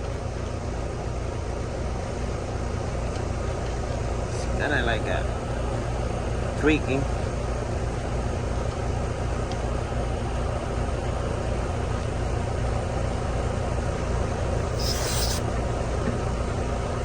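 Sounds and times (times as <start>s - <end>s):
condenser unit humming: 0.0s - 17.0s
short hiss of refrigerant: 14.7s - 15.4s.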